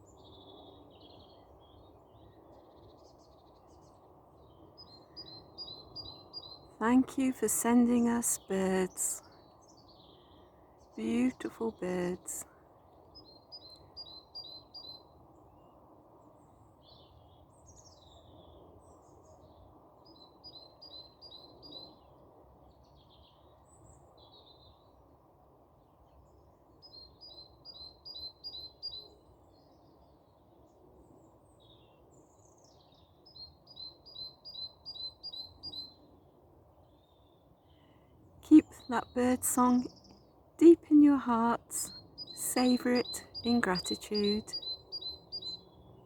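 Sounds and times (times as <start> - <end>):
low background noise: 0.0 - 20.2, 33.9 - 46.0.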